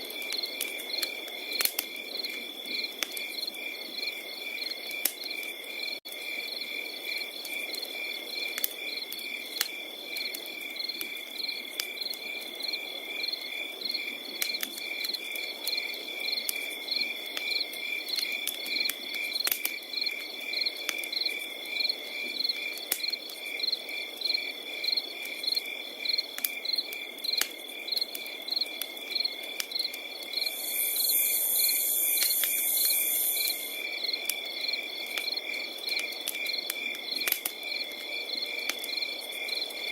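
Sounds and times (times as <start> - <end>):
wood fire crackling: 0.0 - 4.1, 7.0 - 12.5, 14.3 - 21.5, 22.5 - 23.6, 26.2 - 34.4, 35.0 - 39.9
continuous insect trill: 0.0 - 39.9
crickets chirping: 0.2 - 14.3, 14.9 - 39.9
high buzzing insect call: 30.4 - 33.8.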